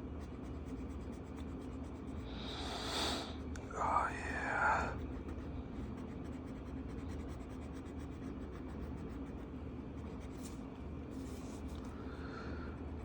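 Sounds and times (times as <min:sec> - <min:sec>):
marker scratching on paper: 0:00.0 - 0:02.2, 0:05.1 - 0:11.7
low steady hum: 0:00.0 - 0:13.0.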